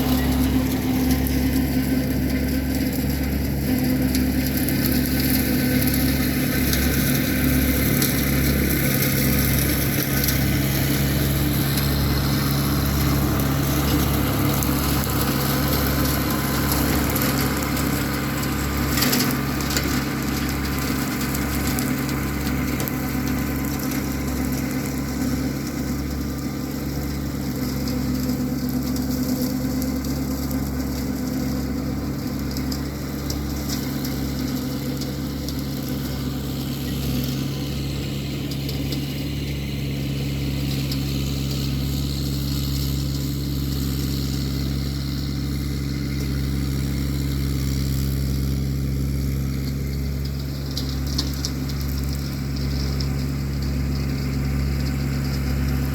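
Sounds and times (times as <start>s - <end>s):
tractor diesel engine under load: 0.0s - 55.9s.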